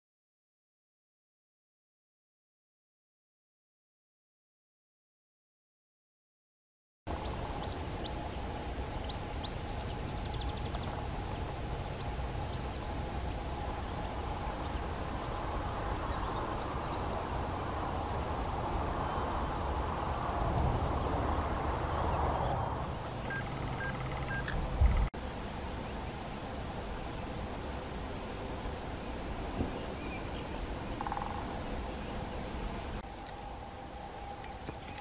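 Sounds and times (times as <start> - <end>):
steady outdoor hiss: 7.1 - 35.0
woodpecker calling: 23.1 - 25.1, 31.0 - 31.6.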